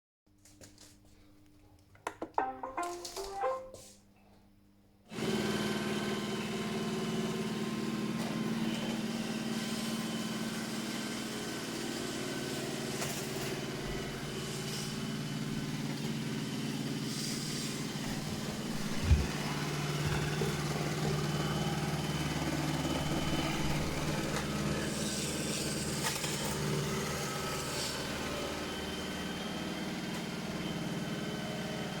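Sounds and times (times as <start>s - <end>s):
robot vacuum motor and brushes: 17.1s - 22.0s, 22.8s - 29.1s.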